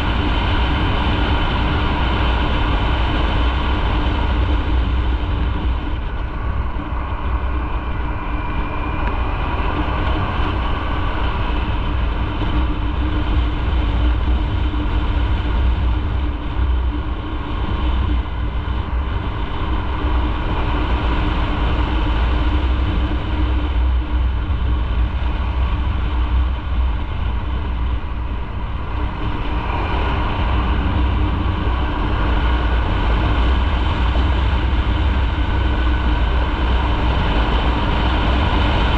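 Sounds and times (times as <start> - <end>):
motorcycle engine hum: 0.0 - 38.9
wind and road noise: 0.0 - 38.9.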